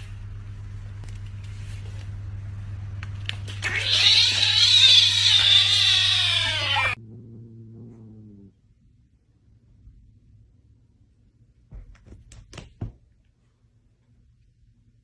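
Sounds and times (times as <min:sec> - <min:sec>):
steady low hum: 0:00.0 - 0:03.9
cat yowling: 0:03.6 - 0:07.0.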